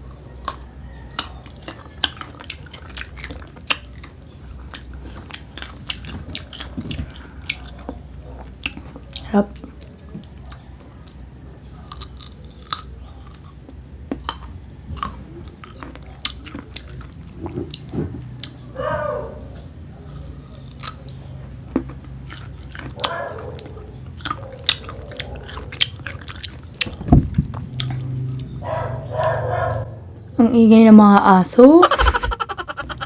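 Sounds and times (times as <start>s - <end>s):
crunchy biting and chewing: 0.0s - 18.6s, 19.3s - 29.9s.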